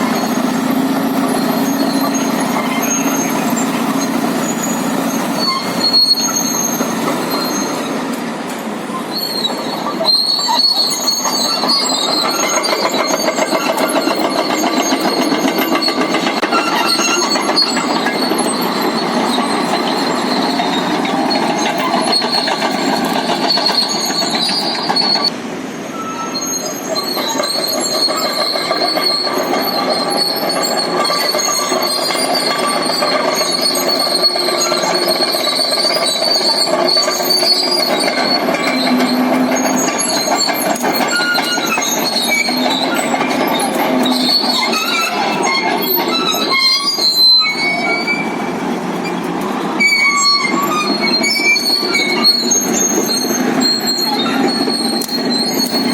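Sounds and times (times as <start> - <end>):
diesel engine running: 0.0 - 9.0
steel tracks squealing and clanking: 0.0 - 55.9.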